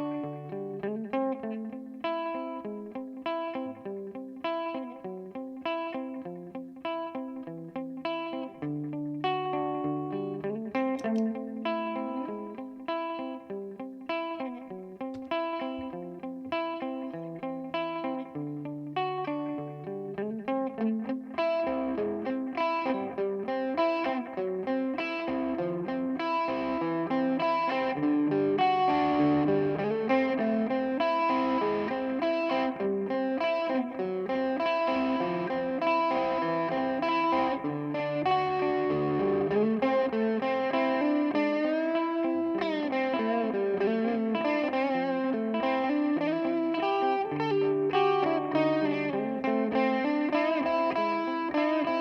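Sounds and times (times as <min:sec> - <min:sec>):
electric guitar with delay echoes: 0:00.0 - 0:52.0.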